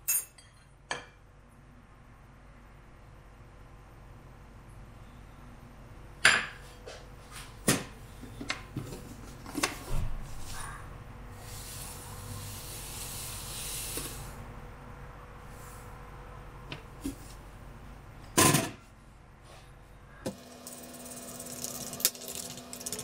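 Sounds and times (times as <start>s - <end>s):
steady hiss: 11.4s - 14.4s.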